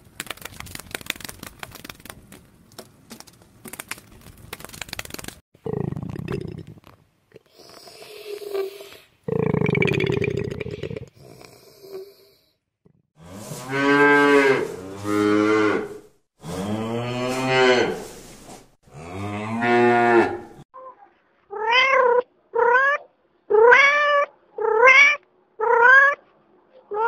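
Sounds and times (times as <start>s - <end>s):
cow mooing: 13.2s - 18.0s, 18.9s - 20.6s
cat meowing: 21.5s - 26.2s.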